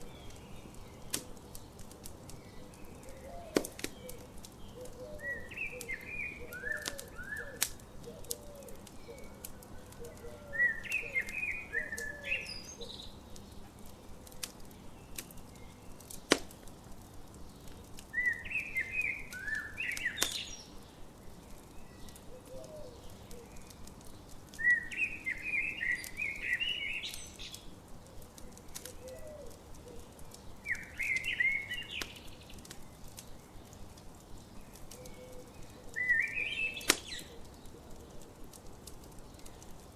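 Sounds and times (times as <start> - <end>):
campfire crackling and popping: 0.0 - 39.9
songbird singing: 0.0 - 39.9
soft low bird call: 35.0 - 37.6.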